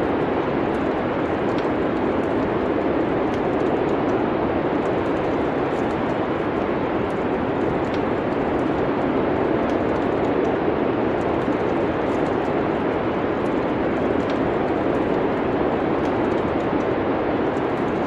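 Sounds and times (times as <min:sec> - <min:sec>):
wood fire crackles: 0:00.0 - 0:18.0.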